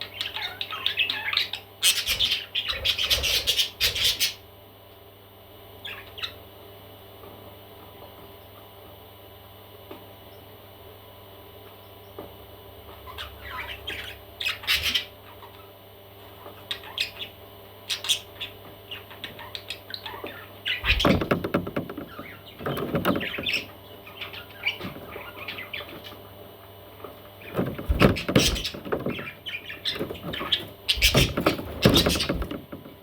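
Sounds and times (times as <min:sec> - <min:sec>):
baby parrots squawking and chirping: 0:00.1 - 0:04.4, 0:13.1 - 0:15.6, 0:17.9 - 0:21.3, 0:27.9 - 0:32.5.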